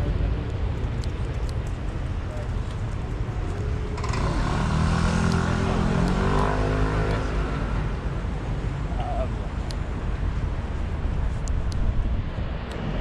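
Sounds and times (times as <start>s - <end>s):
motor vehicle driving past: 3.4s - 8.0s.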